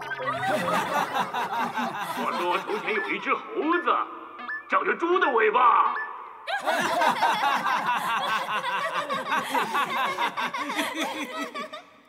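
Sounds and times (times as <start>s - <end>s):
studio audience laughing: 0.0s - 3.4s, 6.5s - 12.0s.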